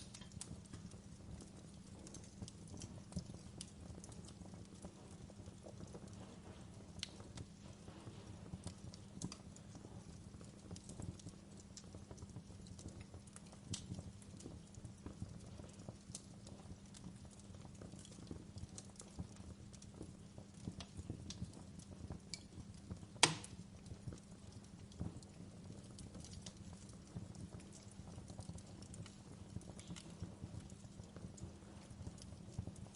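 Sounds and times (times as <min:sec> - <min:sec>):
fire crackling and popping: 0:00.0 - 0:32.9
fire flames rumbling: 0:00.0 - 0:32.9
loud sharp snap of fire: 0:23.2 - 0:23.7.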